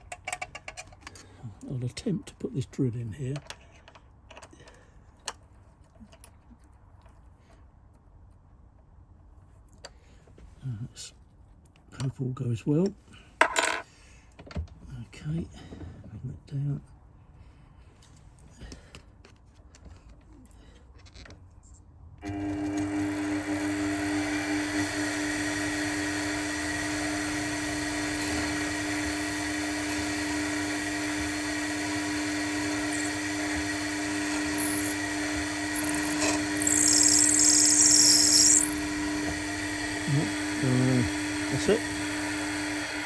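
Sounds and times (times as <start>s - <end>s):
drill scraping through metal: 22.2s - 43.0s
machine spindle running: 22.2s - 43.0s.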